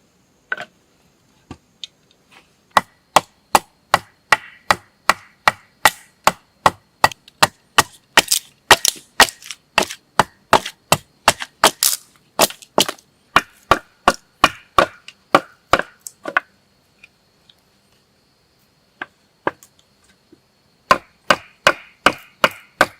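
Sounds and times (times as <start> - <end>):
blade chopping wood: 2.7 - 16.5, 20.9 - 22.9.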